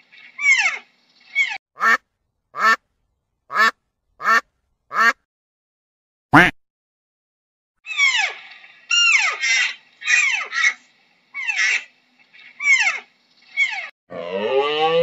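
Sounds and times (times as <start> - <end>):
deer high squealing calls: 7.9 - 13.9.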